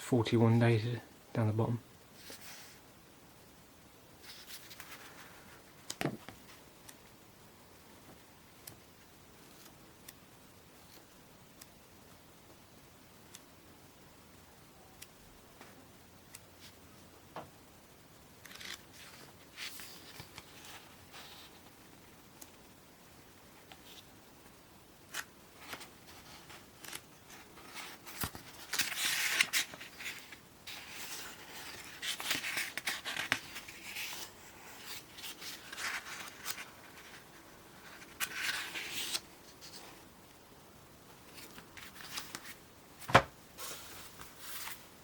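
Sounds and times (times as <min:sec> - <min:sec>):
paper pages rustling: 0:04.2 - 0:06.6, 0:18.4 - 0:21.7, 0:25.1 - 0:40.0, 0:41.3 - 0:44.9.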